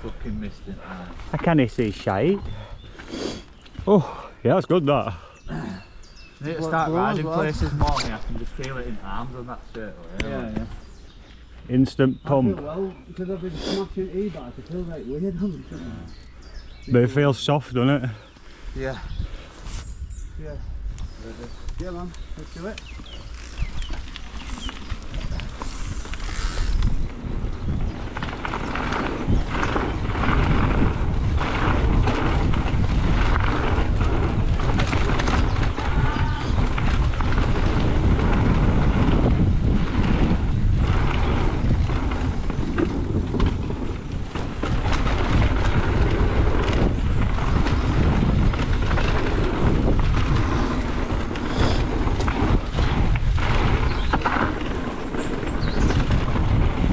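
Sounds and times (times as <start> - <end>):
bike tyres rolling over dirt: 0.0 - 4.3, 20.9 - 56.9
wind buffeting microphone: 0.0 - 4.5, 5.1 - 56.9
bike clattering over bumps: 21.8 - 56.9.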